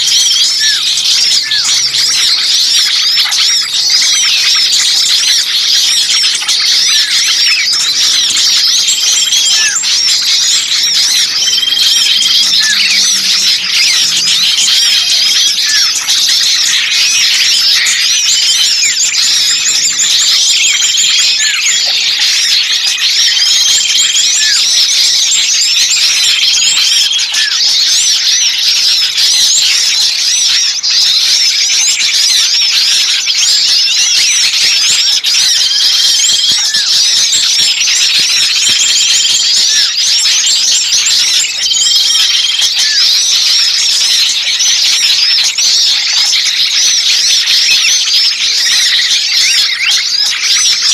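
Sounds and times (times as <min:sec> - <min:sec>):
small birds chirping and twittering: 0:00.0 - 0:50.9.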